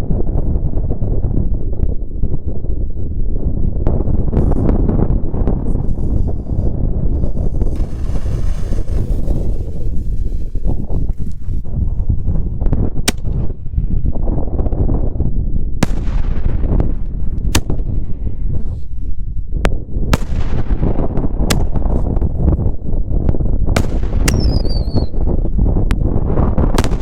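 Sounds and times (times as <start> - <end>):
steady low rumble: 2.0 - 22.8
firework shells bursting: 6.3 - 11.5.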